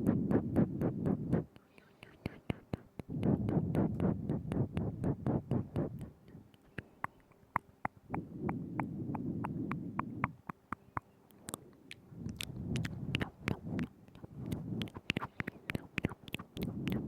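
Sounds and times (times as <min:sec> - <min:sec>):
tongue and lip clicks: 0:00.0 - 0:17.0.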